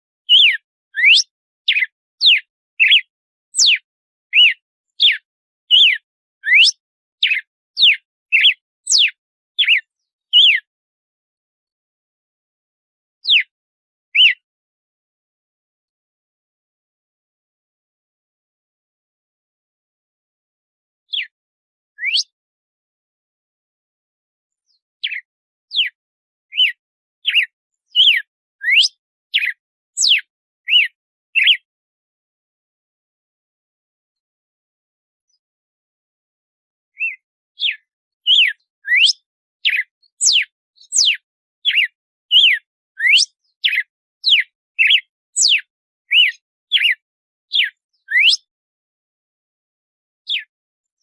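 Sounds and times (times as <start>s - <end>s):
bird whistling song: 0.2s - 10.7s, 13.2s - 13.5s, 14.1s - 14.5s, 21.1s - 21.4s, 22.0s - 22.4s, 24.6s - 31.7s, 36.9s - 48.5s, 50.3s - 50.5s.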